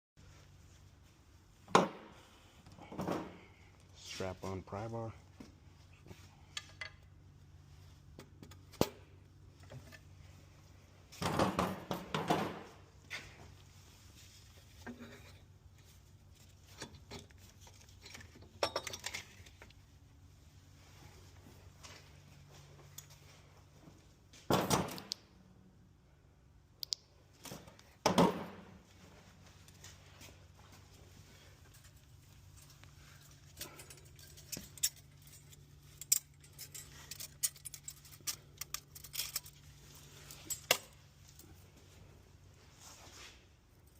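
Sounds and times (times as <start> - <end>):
steady low hum: 0.2 - 43.9
metal tools clattering: 16.3 - 19.7, 31.3 - 41.5.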